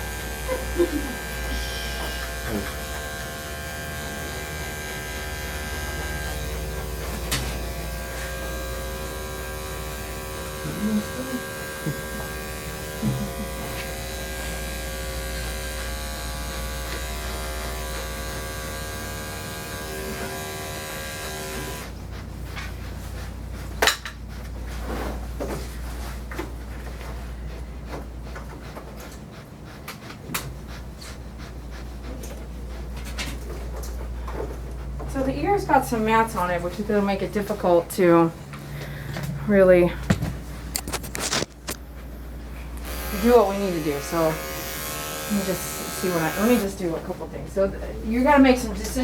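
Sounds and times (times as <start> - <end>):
electric clippers buzzing: 0.0 - 22.0, 42.6 - 46.8.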